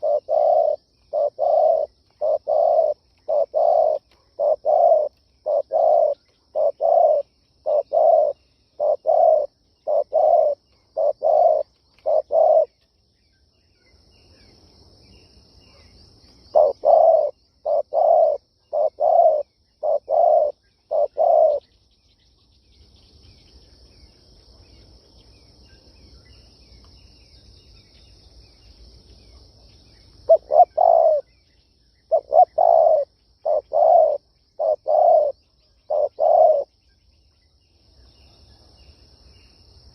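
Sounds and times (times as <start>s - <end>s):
dove cooing: 0.0s - 12.8s, 16.5s - 21.6s, 30.2s - 31.3s, 32.1s - 36.7s.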